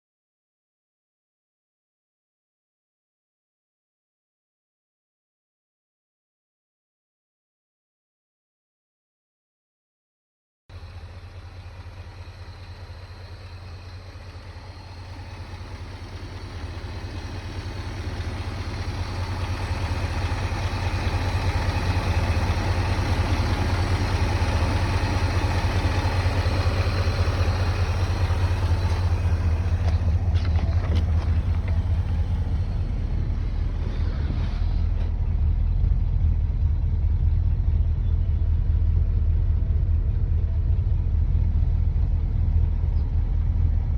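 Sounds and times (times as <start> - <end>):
car engine rumbling: 10.7 - 43.9.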